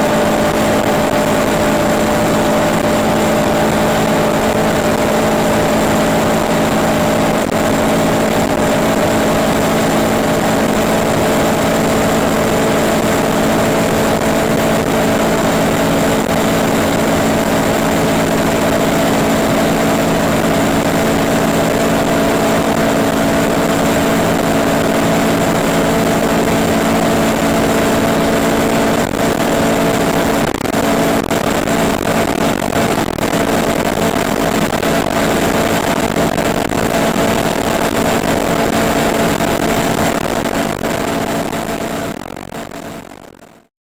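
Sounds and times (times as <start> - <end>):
wind and road noise: 0.0 - 43.0
car engine at high revs: 0.0 - 43.6.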